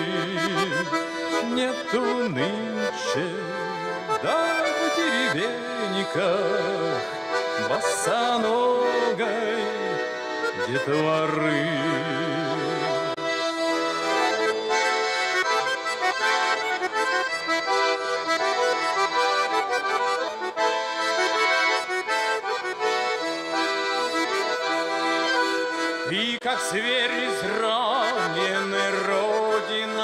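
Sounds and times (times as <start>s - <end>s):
person singing with vibrato: 0.0s - 13.6s, 26.0s - 30.0s
accordion playing folk melody: 0.0s - 30.0s.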